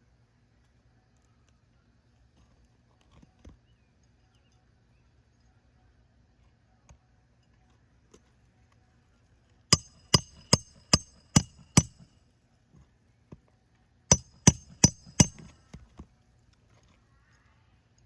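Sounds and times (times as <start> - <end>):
hammer striking metal: 9.8 - 12.0, 14.1 - 15.5.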